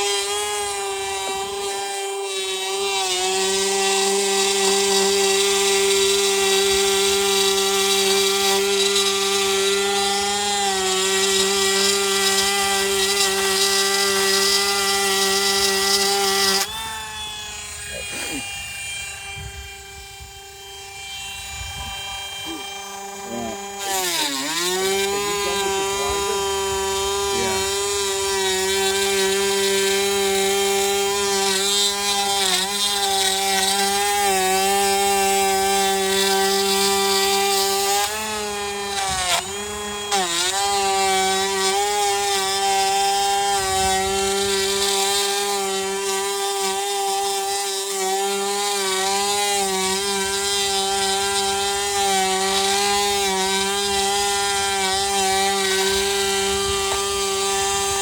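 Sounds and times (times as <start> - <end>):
power tool motor running: 0.0 - 58.0.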